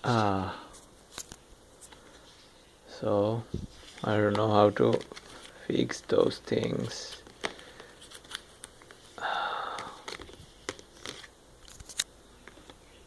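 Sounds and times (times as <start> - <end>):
packaging clicks and taps: 9.7 - 12.8.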